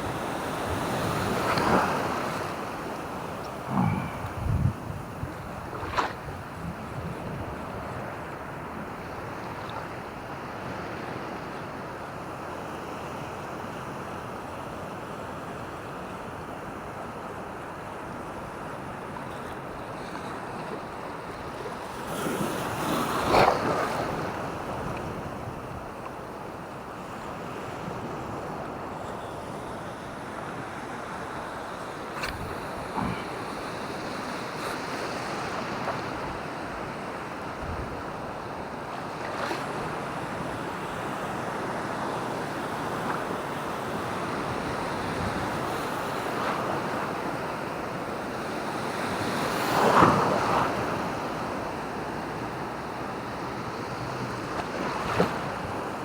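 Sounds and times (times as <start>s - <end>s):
wind on microphone: 0.0s - 9.2s, 32.2s - 36.9s, 37.5s - 38.4s
surf washing on beach: 0.0s - 56.0s.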